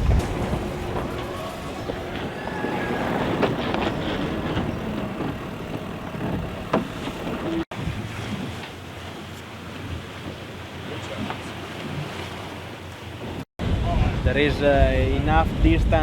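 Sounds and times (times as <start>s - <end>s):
deck gear clicks and squeaks: 0.0s - 7.7s
wash of water and wind: 0.0s - 16.0s.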